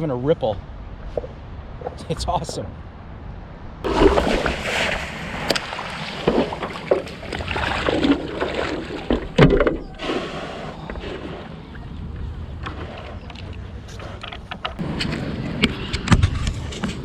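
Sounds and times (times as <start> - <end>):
paddle strokes splashing in water: 3.9 - 11.8.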